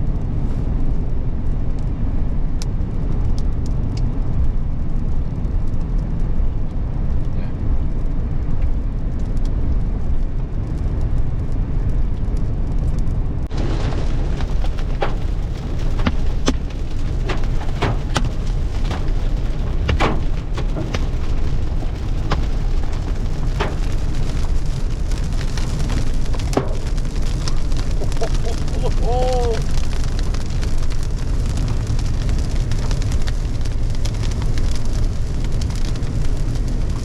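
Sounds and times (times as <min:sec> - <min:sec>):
road and engine rumble: 0:00.0 - 0:37.0
hailstones striking car roof: 0:13.5 - 0:37.0
rain hiss: 0:13.5 - 0:37.0.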